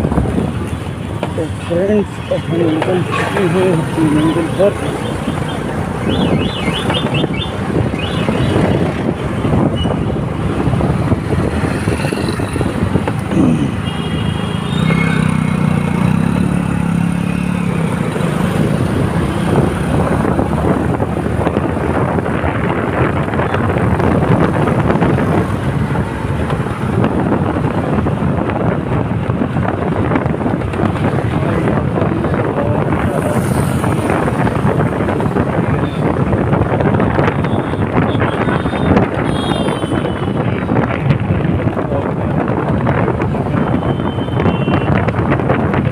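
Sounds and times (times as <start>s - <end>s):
road traffic: 0.0s - 45.9s
wind: 0.0s - 45.9s
passing vehicle tone: 13.5s - 19.7s.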